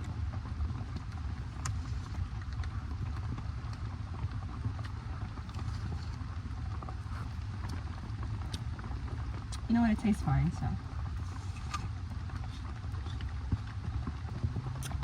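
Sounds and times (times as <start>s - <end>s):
raindrops tapping on tarp: 0.0s - 15.0s
steady low rumble: 0.0s - 15.0s.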